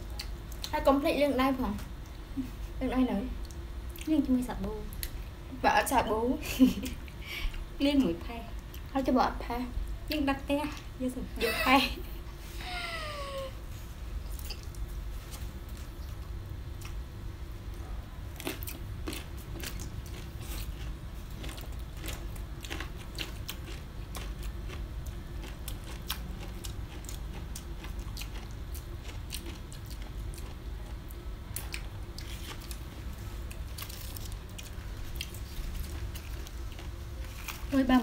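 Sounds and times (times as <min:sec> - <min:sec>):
steady low hum: 0:00.0 - 0:38.0
people chewing and biting food: 0:14.2 - 0:17.1, 0:17.7 - 0:37.8
crisp clicks and crunches: 0:33.5 - 0:37.8.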